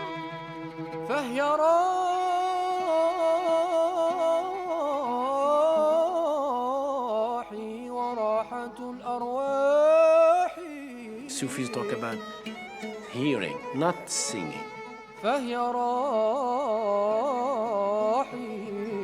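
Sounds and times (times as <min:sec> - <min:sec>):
solo voice singing: 0:01.1 - 0:11.9, 0:15.2 - 0:19.0.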